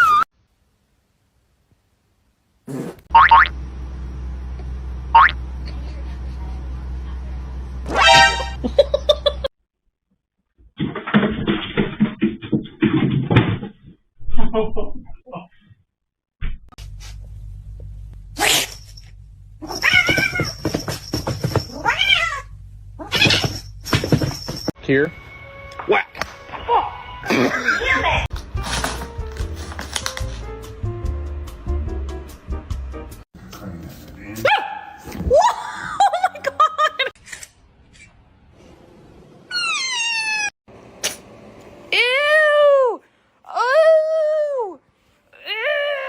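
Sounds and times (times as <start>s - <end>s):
low hum: 16.8s - 25.7s
cat yowling: 21.7s - 23.5s, 39.5s - 40.5s
person giggling: 27.3s - 27.9s, 35.5s - 37.1s.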